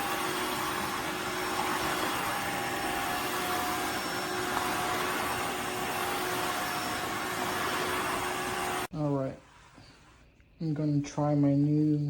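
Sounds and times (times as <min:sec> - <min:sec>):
vacuum mop motor whirring: 0:00.0 - 0:08.9.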